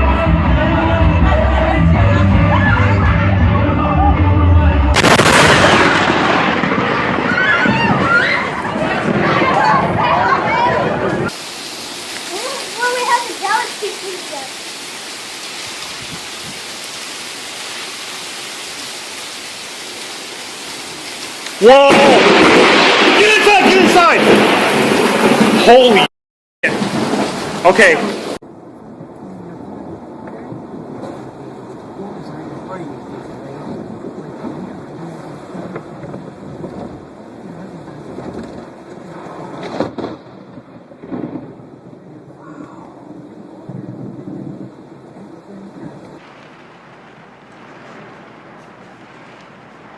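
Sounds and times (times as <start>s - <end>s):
thunder crack and rumble: 4.9s - 11.4s, 21.6s - 49.9s
heavy rain falling: 4.9s - 49.9s.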